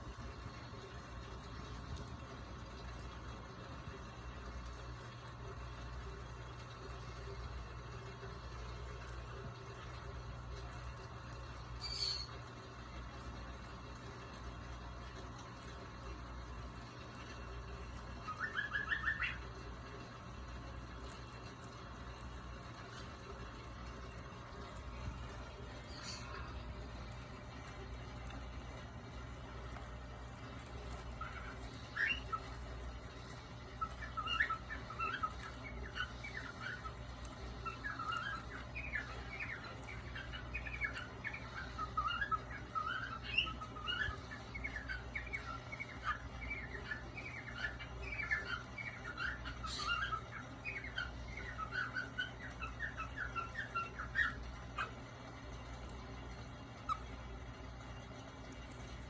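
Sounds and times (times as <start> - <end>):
cockatiels chirping: 8.5 - 12.4, 16.8 - 20.2, 24.1 - 26.6, 29.6 - 57.2.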